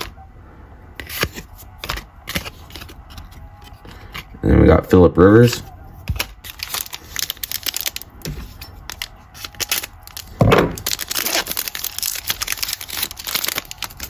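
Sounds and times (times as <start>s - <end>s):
plastic wrapper crinkling and tearing: 6.1s - 14.0s.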